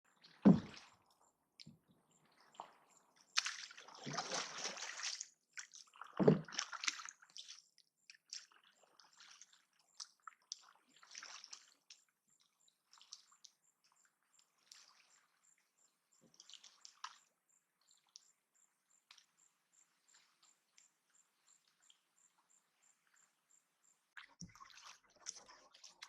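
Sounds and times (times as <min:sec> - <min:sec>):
water splashing and sloshing: 0:00.1 - 0:26.0
heavy splash with low thump: 0:00.4 - 0:00.9, 0:03.4 - 0:05.1, 0:06.2 - 0:06.8
water dripping: 0:16.2 - 0:18.4, 0:24.1 - 0:26.0.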